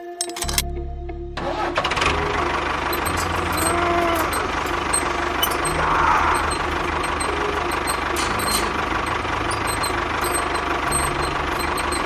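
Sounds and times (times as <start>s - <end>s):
engine pulsing rumble: 0.5s - 12.0s.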